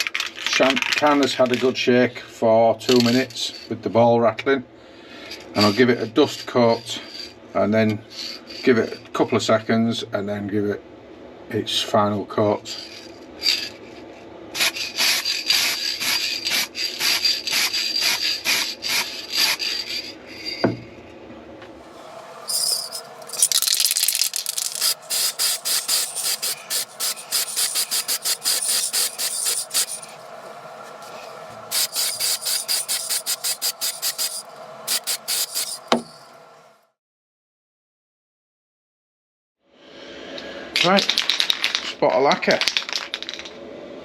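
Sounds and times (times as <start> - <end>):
aerosol spray can hissing: 14.6 - 19.7, 22.5 - 36.3.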